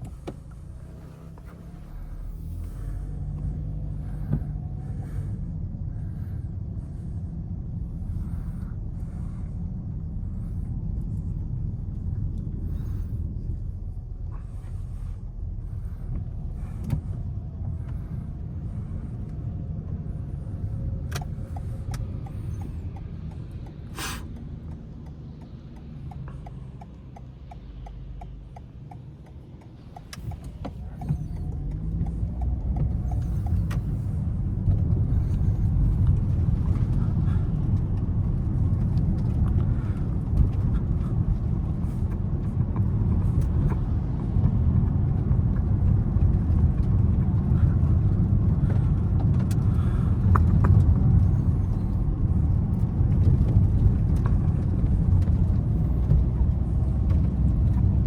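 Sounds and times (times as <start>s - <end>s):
car engine and tyres rumbling: 0.0s - 58.0s
light regular ticking: 15.4s - 58.0s.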